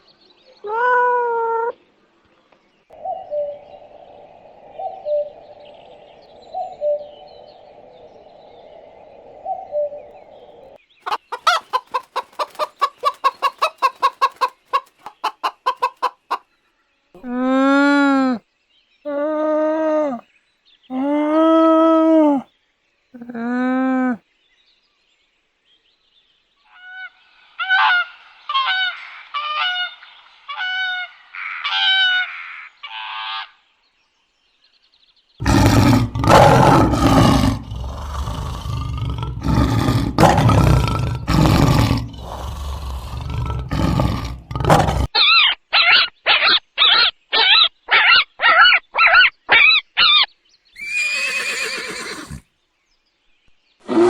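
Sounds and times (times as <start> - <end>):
fast short repeated calls: 11.0 - 16.4
higher repeated animal calls: 11.0 - 16.4, 35.4 - 45.1, 50.8 - 52.4
loud rough animal calls: 35.4 - 45.1, 50.8 - 52.4.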